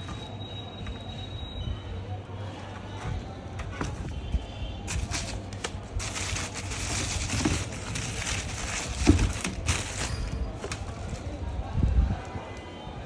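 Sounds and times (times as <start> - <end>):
packaging rustling and crinkling: 4.9 - 11.6.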